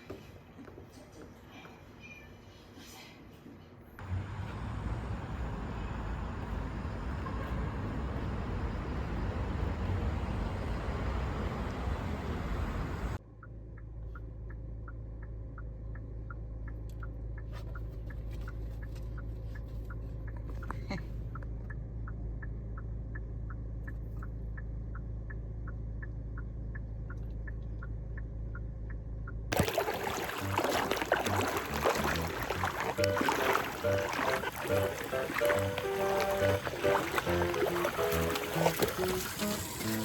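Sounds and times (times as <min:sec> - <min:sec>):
car engine and road hum: 0:04.0 - 0:29.6
turn signal ticking: 0:04.0 - 0:29.6
music: 0:31.4 - 0:40.0.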